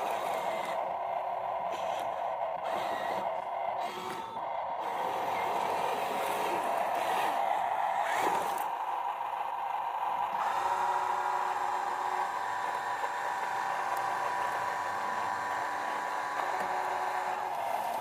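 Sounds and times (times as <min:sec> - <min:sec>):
toy electric motors whining: 0:00.0 - 0:18.0.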